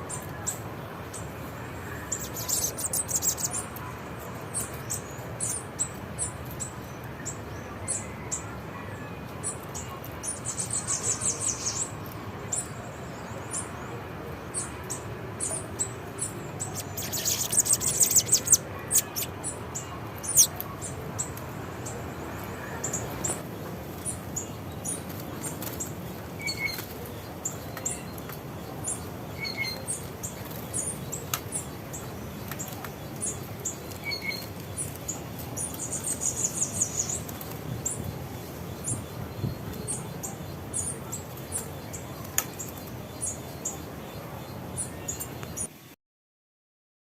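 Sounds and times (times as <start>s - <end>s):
small songbirds chirping: 0.0s - 45.9s.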